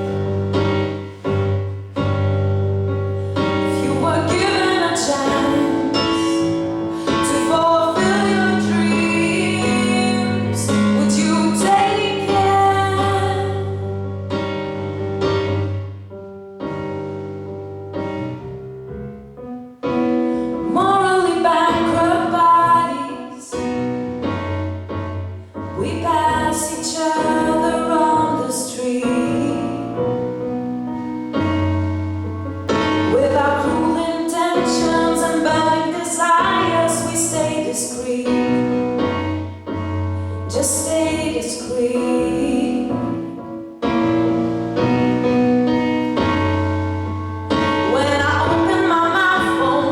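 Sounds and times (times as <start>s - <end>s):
piano chords: 0.0s - 49.9s
woman singing pop ballad: 3.6s - 13.8s, 20.7s - 23.6s, 25.8s - 29.9s, 33.1s - 38.8s, 40.5s - 43.2s, 47.8s - 49.9s.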